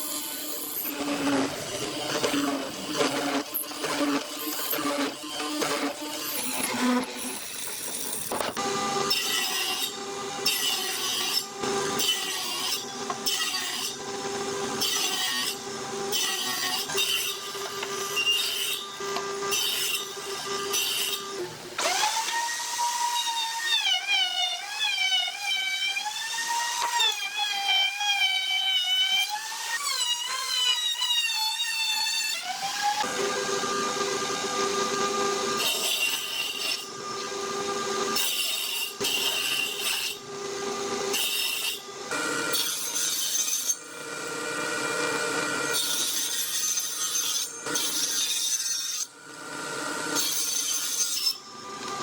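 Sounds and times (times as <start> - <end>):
power tool motor whine: 0.0 - 10.5, 18.8 - 25.3, 32.4 - 42.9.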